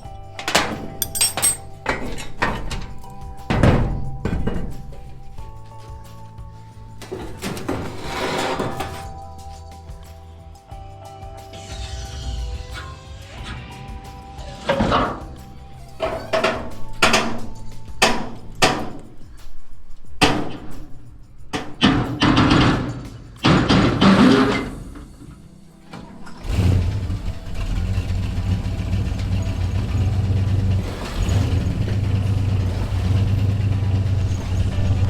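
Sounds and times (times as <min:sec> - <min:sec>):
sharp knocks and clanks: 0:00.0 - 0:10.2, 0:12.8 - 0:26.8
vehicle engine starting and idling: 0:21.5 - 0:35.0.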